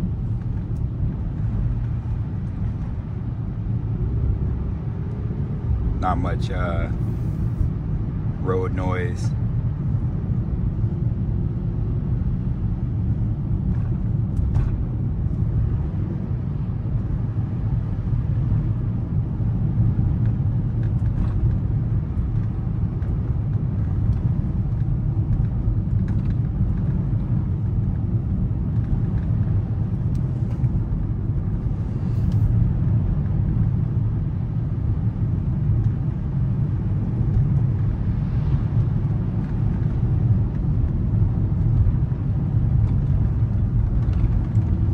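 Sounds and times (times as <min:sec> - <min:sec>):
tyre and drivetrain rumble: 0:00.0 - 0:44.9.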